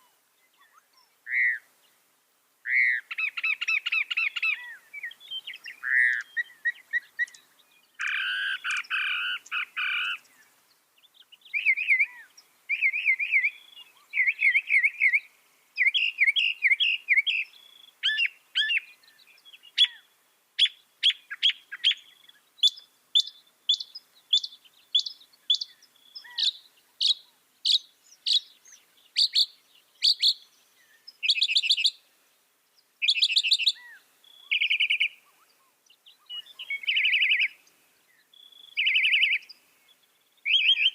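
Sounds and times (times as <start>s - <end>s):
mockingbird singing: 2.7s - 10.5s, 11.1s - 32.0s, 33.0s - 40.9s.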